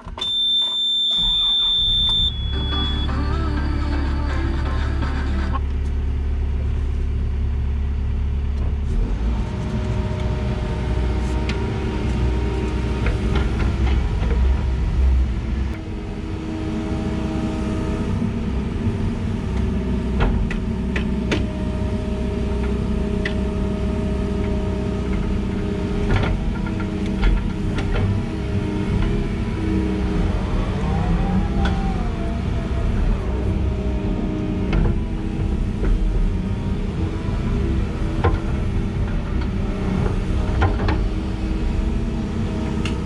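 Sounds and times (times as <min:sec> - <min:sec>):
excavator engine running: 0:00.0 - 0:43.0.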